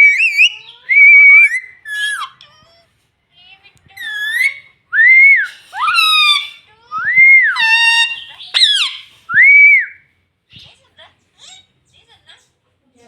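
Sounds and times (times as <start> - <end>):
harsh parrot calls: 0.0 - 2.4, 4.0 - 10.0
parrot whistling: 0.0 - 2.4, 4.0 - 10.0.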